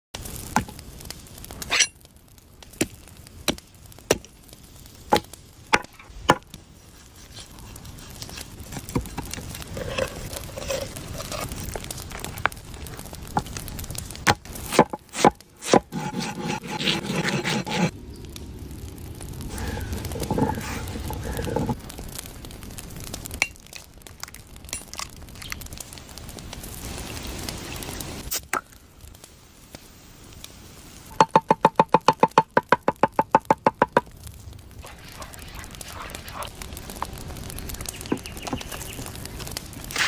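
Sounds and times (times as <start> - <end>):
rubbing and handling sounds: 5.9 - 13.1, 14.7 - 17.9, 19.5 - 21.8.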